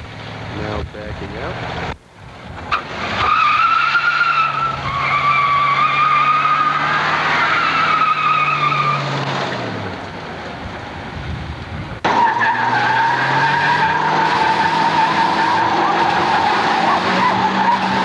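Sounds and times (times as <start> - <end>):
tyres squealing: 2.7 - 9.5, 12.1 - 18.0
engine at high revs: 12.0 - 18.0.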